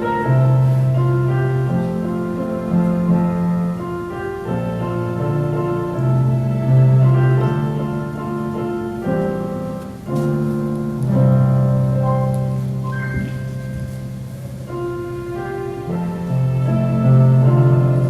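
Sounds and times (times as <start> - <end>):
piano playing slow chords: 0.0 - 18.0.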